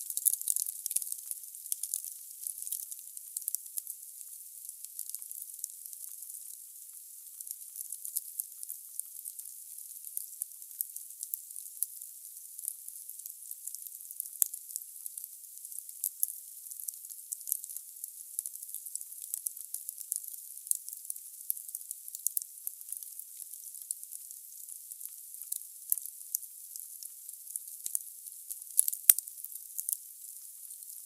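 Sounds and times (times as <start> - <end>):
burning wood crackles and pops: 0.1 - 3.9, 28.7 - 30.0.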